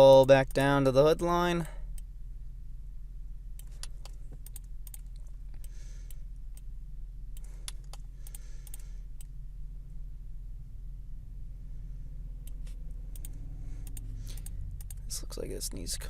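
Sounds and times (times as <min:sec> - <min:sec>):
steady low hum: 0:00.0 - 0:16.0
computer mouse clicks: 0:12.5 - 0:15.1.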